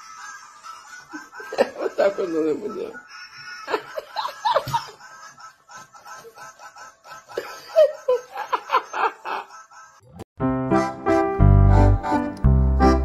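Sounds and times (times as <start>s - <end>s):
person giggling: 0.6s - 3.0s, 3.6s - 10.2s.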